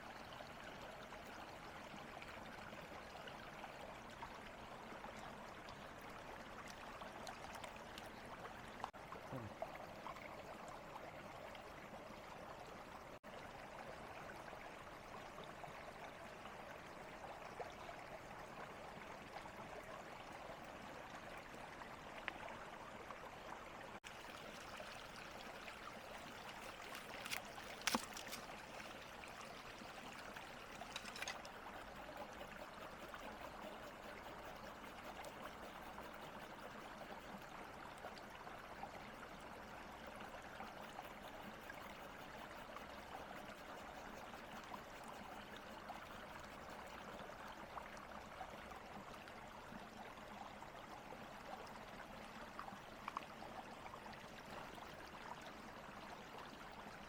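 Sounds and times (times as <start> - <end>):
flowing water rushing: 20.3 - 46.9.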